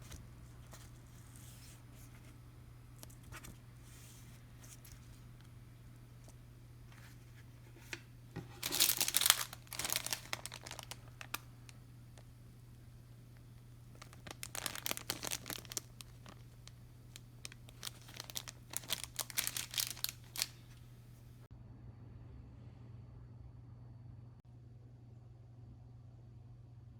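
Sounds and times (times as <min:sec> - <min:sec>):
crinkly material rustling: 0:00.0 - 0:12.3, 0:13.6 - 0:21.5
faint low hum: 0:00.0 - 0:26.9.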